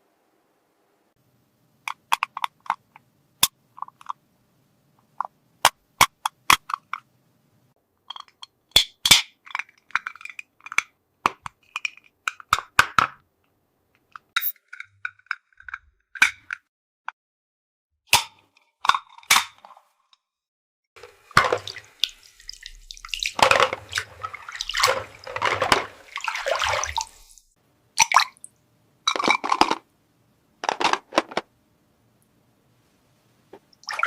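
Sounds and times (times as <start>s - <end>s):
water running and splashing: 21.0s - 28.1s.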